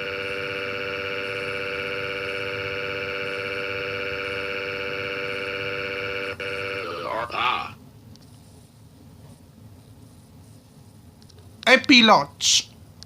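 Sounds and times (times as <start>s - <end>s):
steady siren-like tone: 0.0s - 7.8s.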